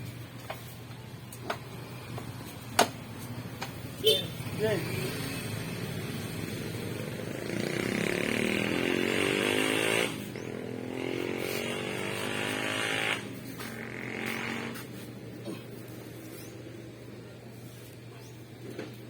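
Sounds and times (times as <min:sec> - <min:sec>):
motorcycle engine revving: 0:04.0 - 0:17.2.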